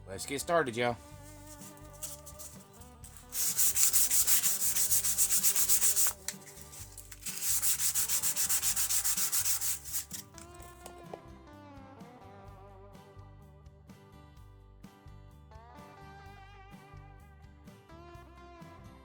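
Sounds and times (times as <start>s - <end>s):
sandpaper rubbing on knife blade: 1.1s - 10.8s.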